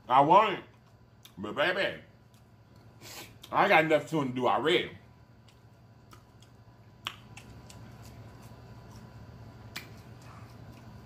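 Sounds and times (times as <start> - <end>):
smacking mouth clicks: 5.4 - 9.1, 9.7 - 11.0
close chewing: 5.4 - 11.0.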